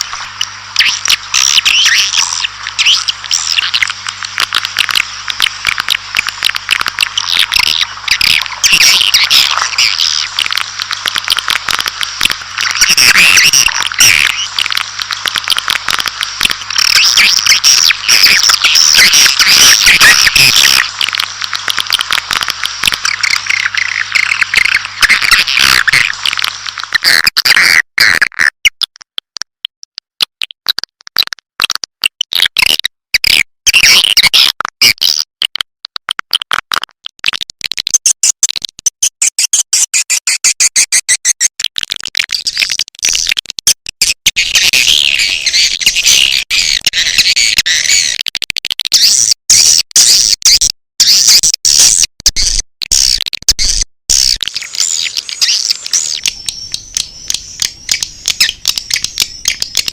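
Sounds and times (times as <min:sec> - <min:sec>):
rapid sharp clicks: 0:00.0 - 0:29.4, 0:52.4 - 0:59.9
swiftlet twittering chirps: 0:54.1 - 0:59.9.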